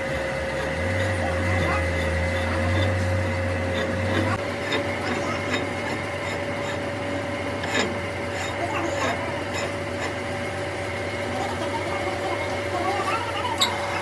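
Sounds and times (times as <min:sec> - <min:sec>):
workshop machine humming: 0:00.0 - 0:14.0.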